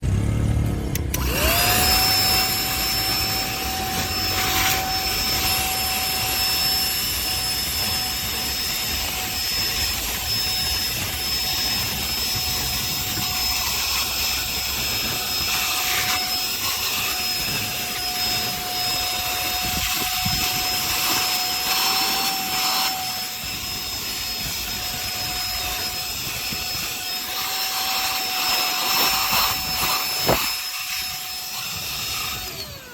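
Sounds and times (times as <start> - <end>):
handheld vacuum cleaner whine: 0.8 - 32.9.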